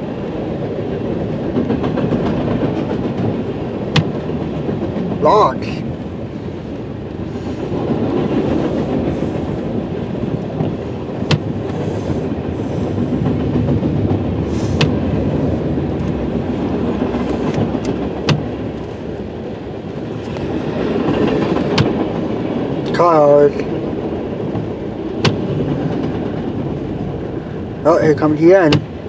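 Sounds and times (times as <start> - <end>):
train wheels rumbling on rails: 0.0 - 29.0
sharp rail clacks: 1.4 - 5.5, 15.9 - 18.8, 20.2 - 23.8, 28.2 - 29.0.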